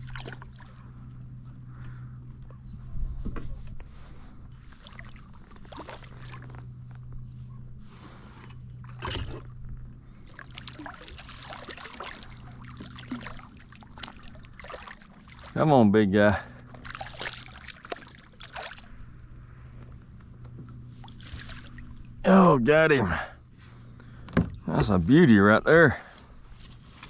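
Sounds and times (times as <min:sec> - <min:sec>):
water splashing: 0:00.0 - 0:00.8, 0:04.7 - 0:06.6, 0:10.1 - 0:15.6, 0:16.6 - 0:19.1, 0:20.9 - 0:22.2
low hum: 0:00.0 - 0:27.0.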